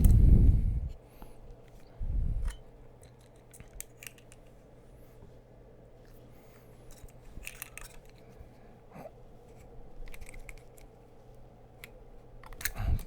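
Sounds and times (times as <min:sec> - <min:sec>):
low steady hum: 0:00.0 - 0:13.0
clicks and scrapes of handling tools: 0:06.8 - 0:08.4.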